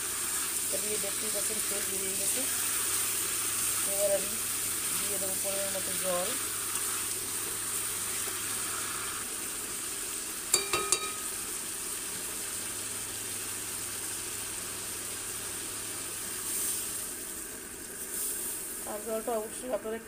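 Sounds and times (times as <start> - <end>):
curry sizzling in oil: 0.0 - 20.0
water hissing in hot pan: 0.0 - 20.0
metal spatula clinking on pan: 10.5 - 11.3.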